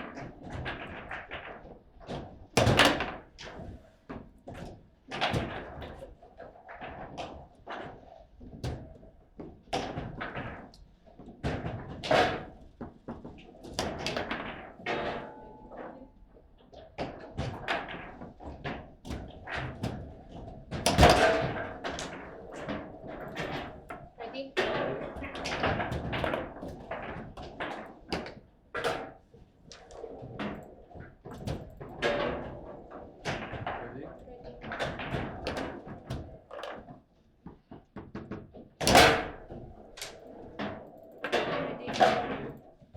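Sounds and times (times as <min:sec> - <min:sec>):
table football ball knocks and clacks: 0:00.0 - 0:15.9, 0:16.6 - 0:42.9.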